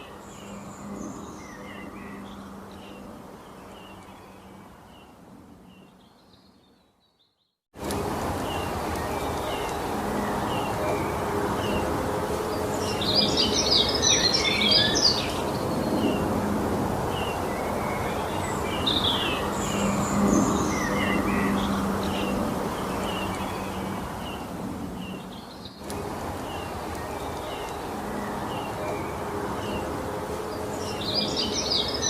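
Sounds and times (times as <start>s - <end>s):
low rushing background noise: 0.0s - 6.3s, 7.8s - 32.0s
songbirds chirping and singing: 8.4s - 16.4s, 17.0s - 32.0s.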